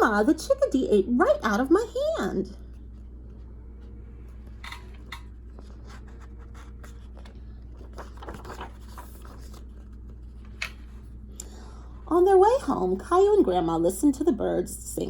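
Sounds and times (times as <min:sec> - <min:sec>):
steady low hum: 0:00.0 - 0:15.0
paper pages rustling: 0:02.6 - 0:11.2.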